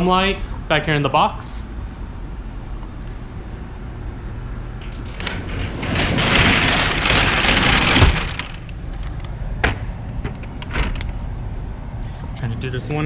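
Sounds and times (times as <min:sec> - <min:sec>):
truck cargo door rattling shut: 0:04.7 - 0:11.2
door bang: 0:04.8 - 0:08.9.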